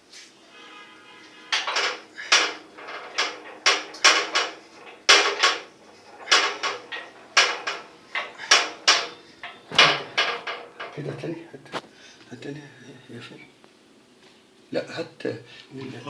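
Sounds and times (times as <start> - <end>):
metal tools clinking together: 1.5 - 11.2.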